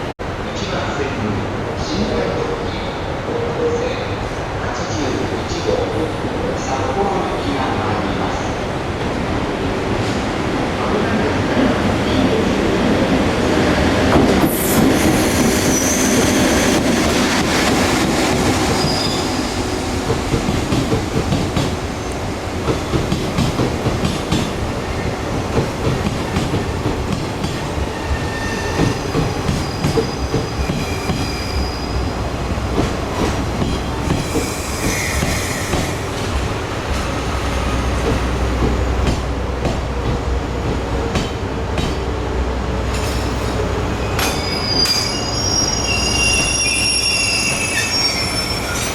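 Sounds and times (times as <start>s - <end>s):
train rumble: 4.2s - 48.9s
train wheels squealing: 14.5s - 16.8s, 18.7s - 19.5s, 27.9s - 32.1s, 33.7s - 36.0s, 43.0s - 48.9s
rail joint clicks: 28.8s - 31.4s, 37.9s - 42.1s, 42.8s - 48.0s.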